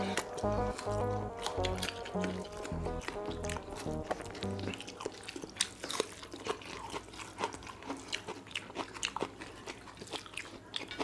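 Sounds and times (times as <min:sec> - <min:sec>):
wet chewing and mouth smacking: 0:00.1 - 0:11.0.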